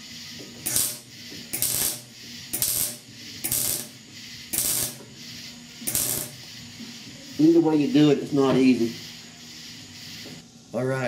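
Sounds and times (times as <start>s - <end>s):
electric welding arc bursts: 0.0s - 6.8s.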